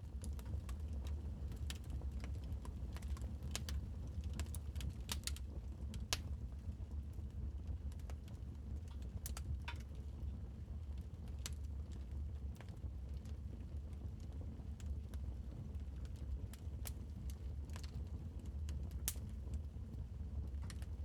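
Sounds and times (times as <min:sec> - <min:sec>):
low rumble of burning fire: 0:00.0 - 0:21.0
wood fire pops and snaps: 0:03.0 - 0:05.4, 0:06.0 - 0:06.4.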